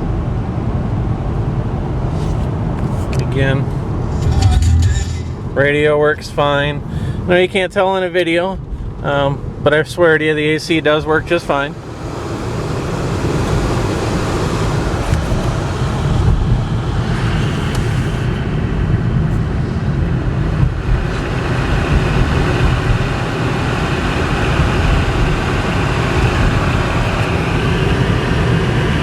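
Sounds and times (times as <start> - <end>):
car road and engine noise: 0.0 - 29.0
air-conditioning blower rushing: 11.5 - 29.0.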